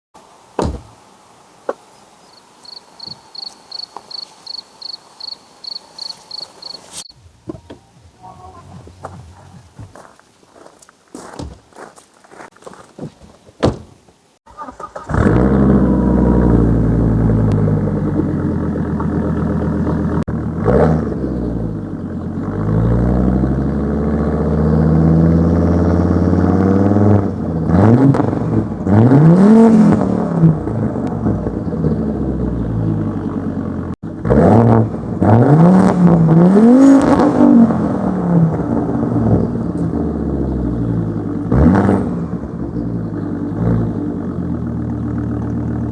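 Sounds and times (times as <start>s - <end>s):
car engine idling and revving: 5.6s - 9.6s, 14.6s - 45.9s
car engine starting: 14.5s - 45.9s.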